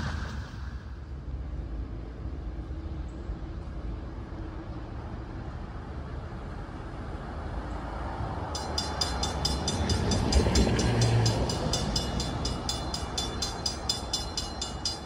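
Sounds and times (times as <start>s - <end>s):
train rumbling: 0.0s - 2.8s, 8.1s - 15.0s
crossing bell ringing rapidly: 8.5s - 15.0s.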